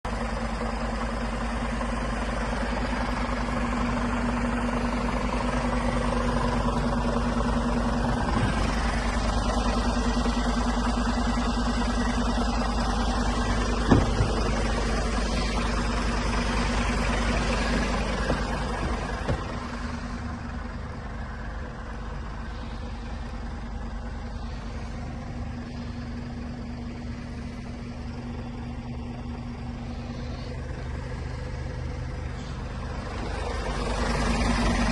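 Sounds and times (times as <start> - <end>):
truck diesel engine idling: 0.0 - 34.9.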